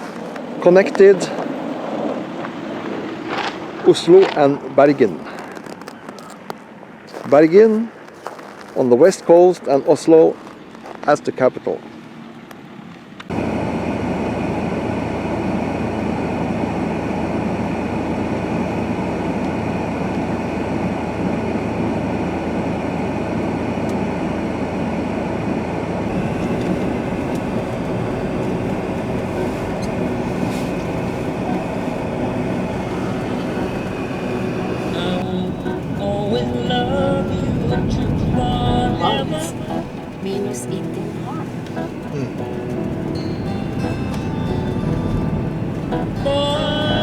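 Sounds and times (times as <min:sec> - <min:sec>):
vehicle rumbling in motion: 0:10.1 - 0:47.0.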